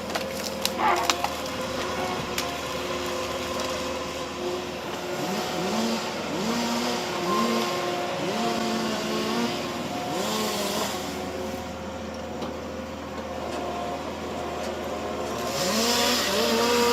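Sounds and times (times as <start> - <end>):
machine engine revving: 0.6 - 11.7, 15.2 - 16.9.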